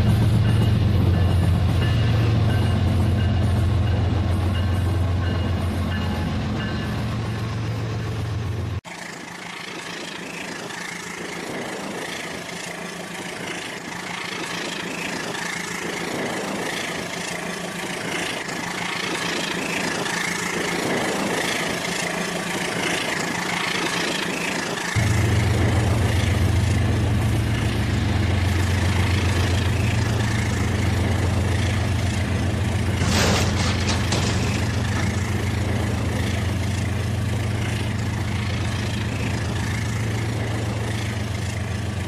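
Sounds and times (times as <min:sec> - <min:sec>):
wheel rattle: 0:32.8 - 0:36.5.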